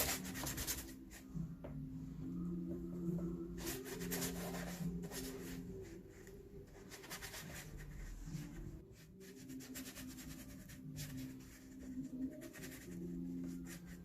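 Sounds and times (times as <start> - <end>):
paintbrush scrubbing on paper: 3.6 - 14.0.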